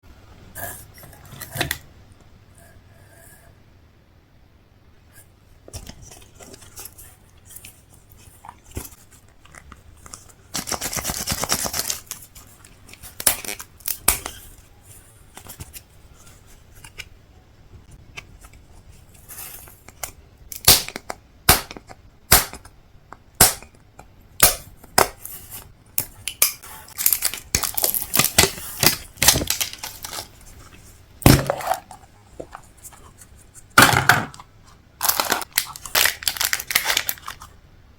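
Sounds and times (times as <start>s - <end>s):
plastic packaging tearing: 10.5s - 14.6s, 26.2s - 30.4s, 35.0s - 37.5s
plastic crinkling and crackling: 26.2s - 33.2s, 35.0s - 37.6s.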